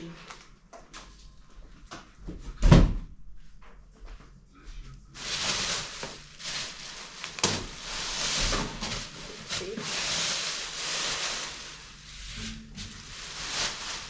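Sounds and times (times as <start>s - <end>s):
packaging rustling: 5.2s - 14.0s.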